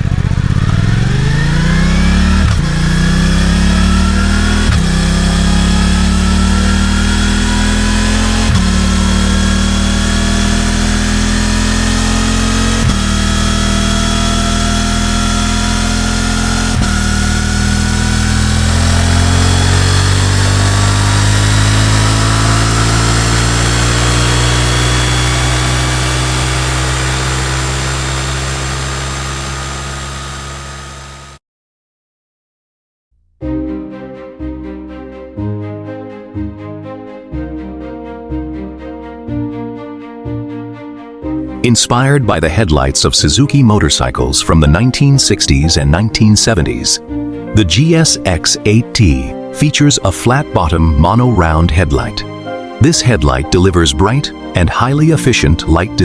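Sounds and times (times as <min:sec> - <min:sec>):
motorcycle engine accelerating: 0:00.0 - 0:31.4.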